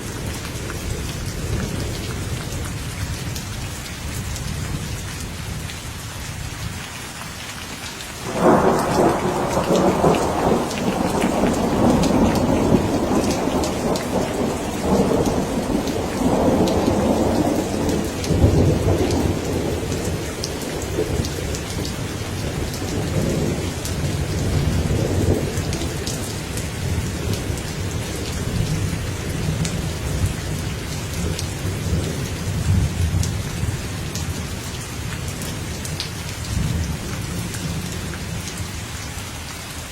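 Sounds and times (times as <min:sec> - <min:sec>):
steady rain: 0:00.0 - 0:39.9
rolling thunder: 0:08.2 - 0:34.5.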